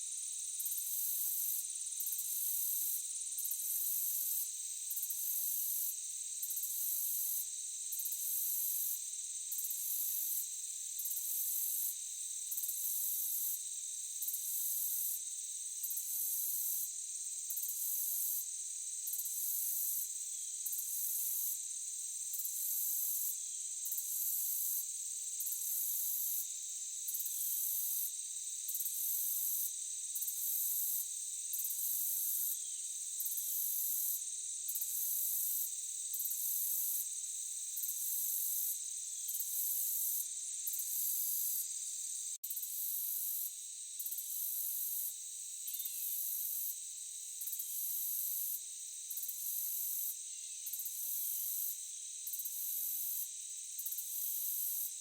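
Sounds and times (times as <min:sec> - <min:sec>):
high insect trill: 0:00.2 - 0:55.0
insects chirring: 0:15.8 - 0:55.0.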